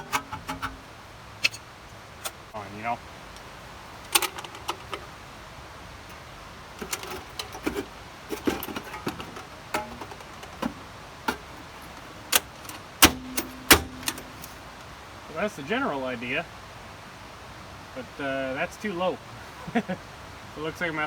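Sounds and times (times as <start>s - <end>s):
sheet metal taps and rattles: 0.0s - 1.6s, 4.1s - 5.1s, 6.8s - 14.9s
ringing metallic clank: 6.8s - 14.8s.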